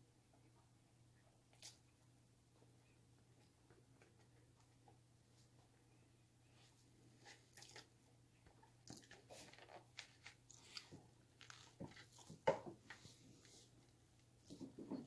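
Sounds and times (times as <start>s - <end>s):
crunching and chewing snack food: 8.6s - 12.4s.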